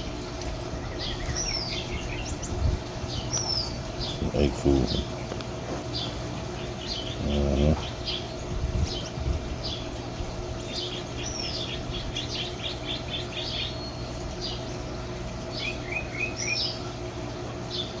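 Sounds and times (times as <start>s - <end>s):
steady low hum: 0.0s - 18.0s
finches chirping: 0.7s - 9.9s.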